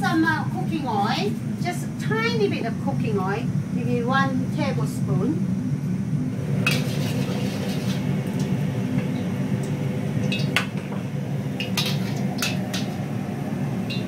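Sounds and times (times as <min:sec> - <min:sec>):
steady low hum: 0:00.0 - 0:14.0
utensils clinking against a pan: 0:11.6 - 0:12.9.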